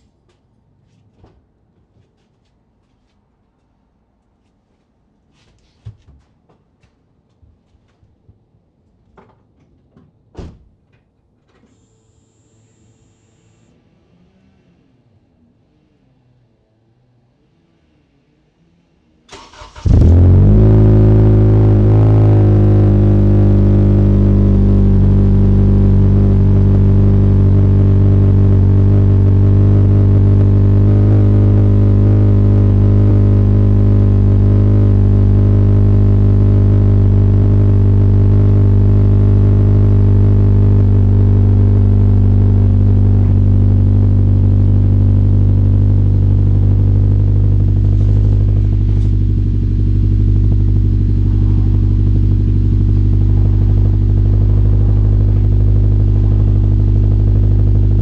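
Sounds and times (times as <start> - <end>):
car engine idling: 19.3 - 58.0.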